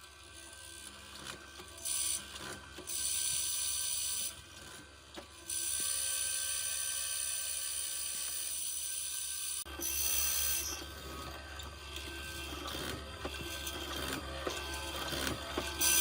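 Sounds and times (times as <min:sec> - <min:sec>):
power tool hissing: 0:05.5 - 0:16.0.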